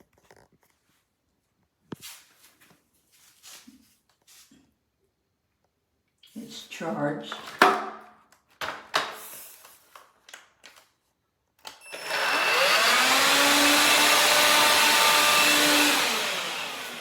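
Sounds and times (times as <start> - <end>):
vacuum cleaner motor whining: 11.7 - 17.0.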